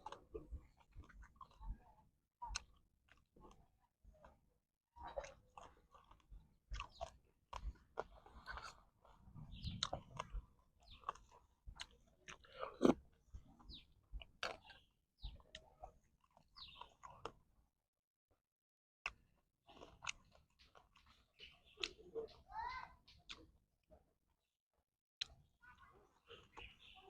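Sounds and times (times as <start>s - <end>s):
person chewing and crunching: 0.0s - 1.7s, 2.5s - 3.6s, 5.0s - 17.4s, 19.0s - 22.0s.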